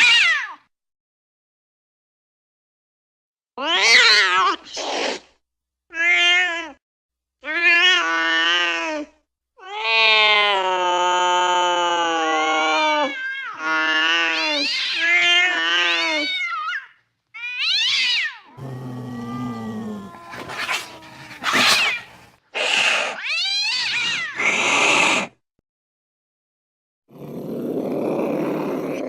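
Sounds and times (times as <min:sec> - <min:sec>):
cat yowling: 0:17.4 - 0:25.2
cat hissing: 0:18.6 - 0:25.4.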